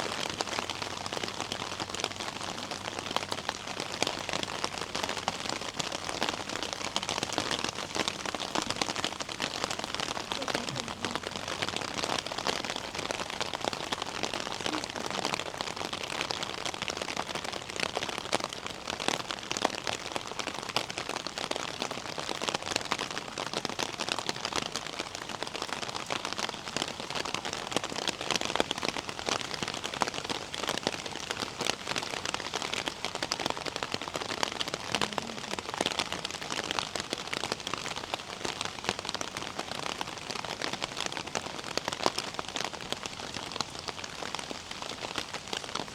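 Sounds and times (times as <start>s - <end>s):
raindrops pattering close by: 0.0s - 45.9s
steady rain falling: 0.0s - 45.9s.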